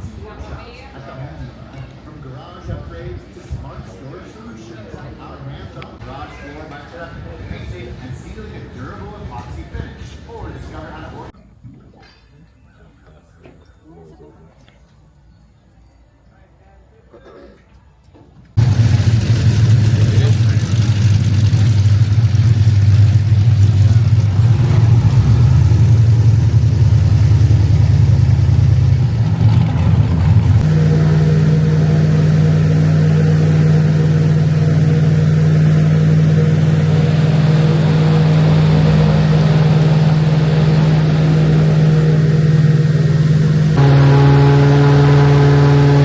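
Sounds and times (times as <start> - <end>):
airboat engine and propeller: 18.6 - 46.0
high hiss: 30.6 - 46.0.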